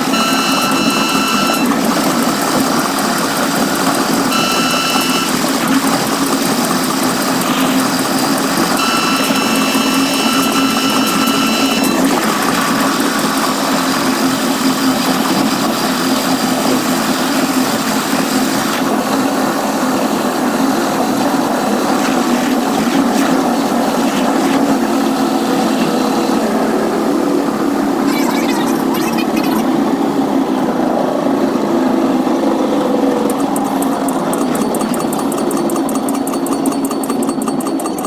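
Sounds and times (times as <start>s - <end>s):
high steady tones: 0.0s - 1.8s, 4.2s - 12.5s, 28.0s - 29.8s
train running on track: 0.0s - 38.0s.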